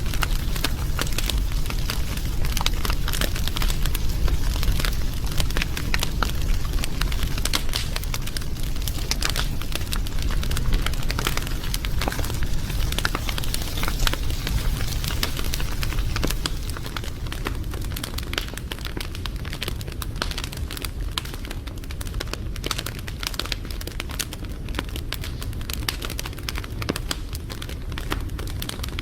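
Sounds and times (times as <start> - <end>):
steady low rumble: 0.0 - 20.2
fire crackling and popping: 0.0 - 29.0.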